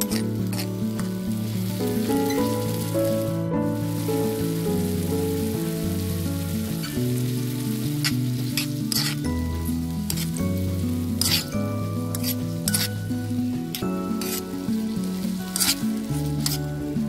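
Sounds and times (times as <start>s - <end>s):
spatula scraping pan: 0.0s - 1.1s, 8.0s - 14.6s, 15.4s - 16.8s
instrumental background music: 0.0s - 17.0s
vegetables sizzling in hot oil: 0.0s - 17.0s.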